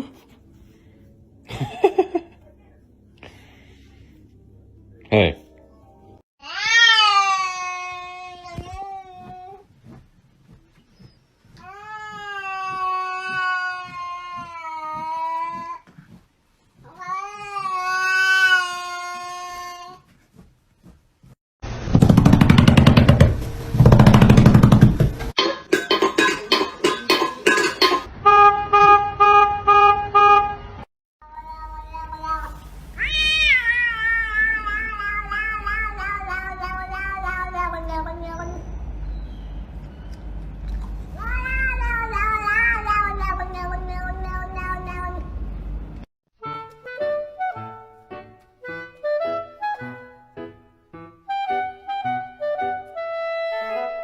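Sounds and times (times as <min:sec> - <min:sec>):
cat yowling: 0:31.2 - 0:38.7, 0:41.2 - 0:45.2.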